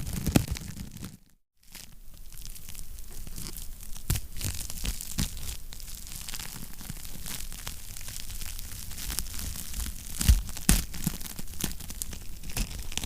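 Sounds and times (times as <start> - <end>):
wood fire crackling: 1.7 - 13.0.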